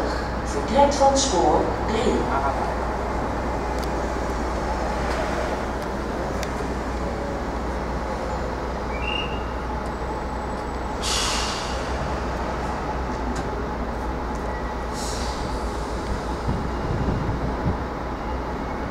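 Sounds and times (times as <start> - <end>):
train low hum and rumble: 0.0 - 18.9
air hiss burst: 11.0 - 12.0, 14.9 - 16.0.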